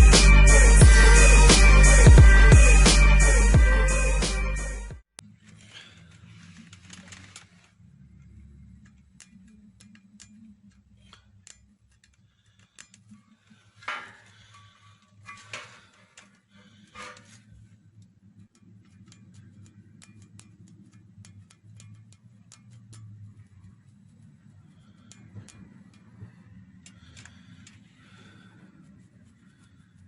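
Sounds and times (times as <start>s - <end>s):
light clicks and taps: 17.0s - 30.0s.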